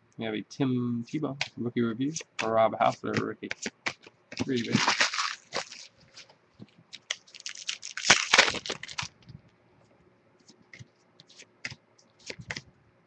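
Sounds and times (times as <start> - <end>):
cards clicking and rustling: 2.2 - 9.2, 10.5 - 12.7
wrapper tearing and crinkling: 4.4 - 6.0, 7.0 - 9.2.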